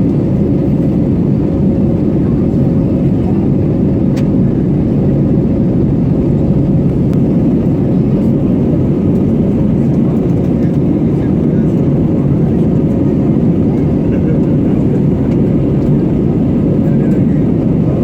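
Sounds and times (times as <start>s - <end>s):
airliner cabin engine roar: 0.0s - 18.0s.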